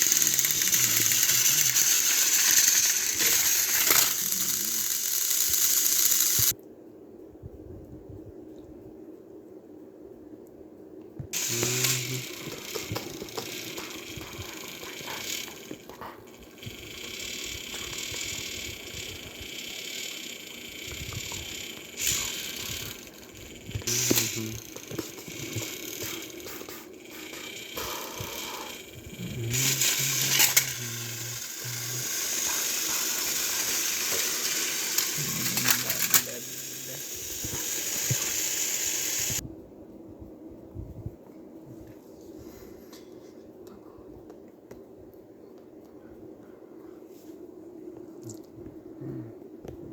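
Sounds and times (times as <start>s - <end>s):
sharp clicks: 0.0s - 6.6s, 11.4s - 39.4s
toy train motors whirring: 0.0s - 6.6s, 11.3s - 39.4s.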